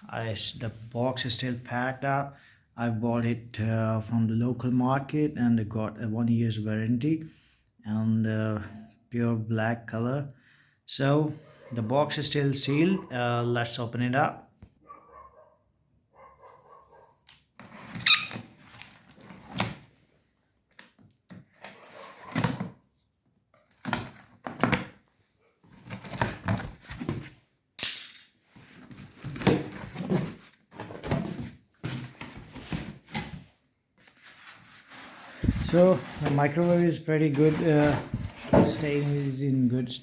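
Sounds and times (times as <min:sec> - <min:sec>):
brief squeak: 0:18.0 - 0:18.4.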